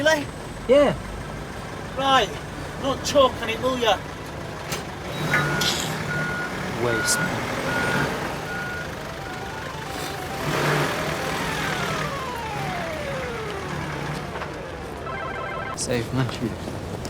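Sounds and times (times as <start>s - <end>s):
vehicle reversing alarm beeping: 4.5s - 15.8s
slow falling tone: 8.5s - 15.8s.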